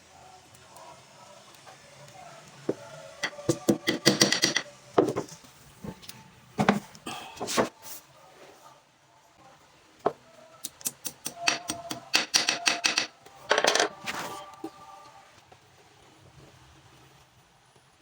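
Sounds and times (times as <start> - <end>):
hard objects clicking and knocking: 2.7 - 7.7, 10.1 - 14.2.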